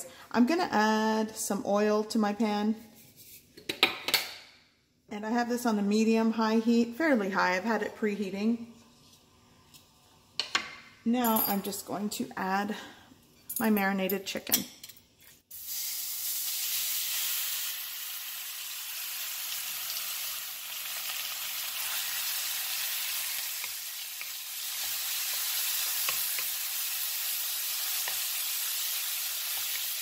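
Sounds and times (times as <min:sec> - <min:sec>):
chicken sizzling in hot oil: 0:15.5 - 0:30.0.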